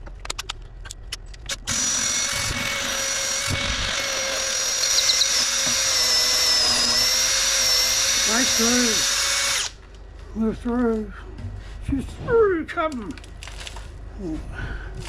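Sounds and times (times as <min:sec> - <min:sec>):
power drill boring through wood: 0:01.7 - 0:09.8.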